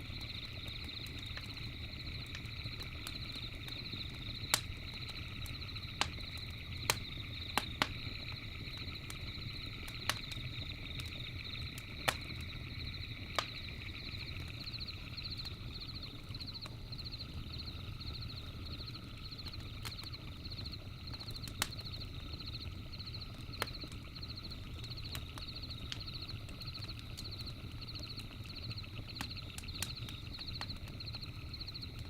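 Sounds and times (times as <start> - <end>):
campfire crackling: 0.0 - 32.0
fire popping: 0.0 - 32.0
insects trilling: 0.0 - 32.0.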